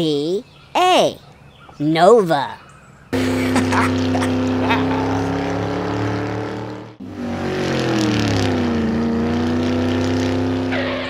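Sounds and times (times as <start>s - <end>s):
engine with sinking pitch: 3.2s - 11.0s.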